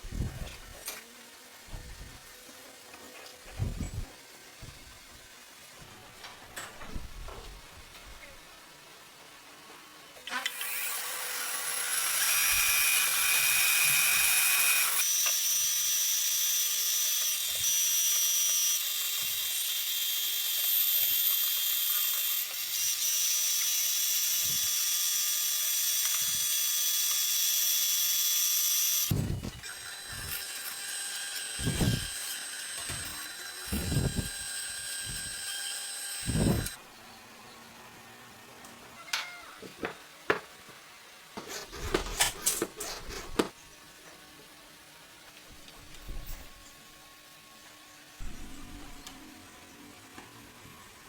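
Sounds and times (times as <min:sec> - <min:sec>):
power tool whining: 0:10.2 - 0:36.8.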